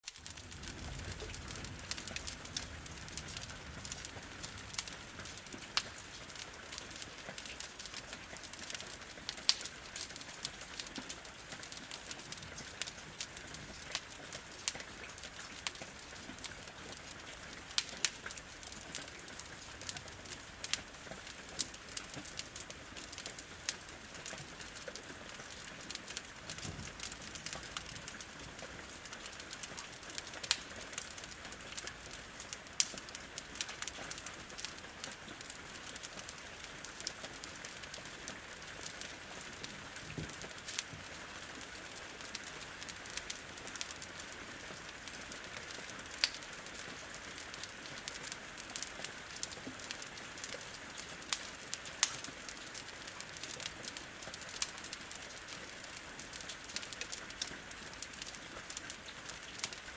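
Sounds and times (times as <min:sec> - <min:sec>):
rain hissing against window: 0:00.0 - 0:59.9
wood fire crackling: 0:00.0 - 0:59.9.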